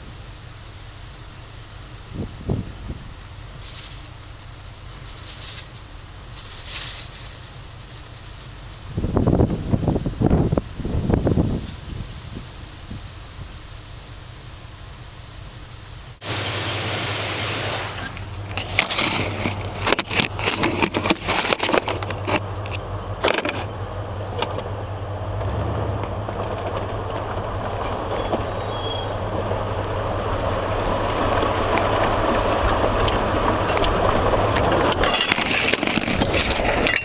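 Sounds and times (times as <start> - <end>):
car engine running low: 0.0 - 37.0
knocks and rattles: 18.4 - 23.7, 31.2 - 37.0.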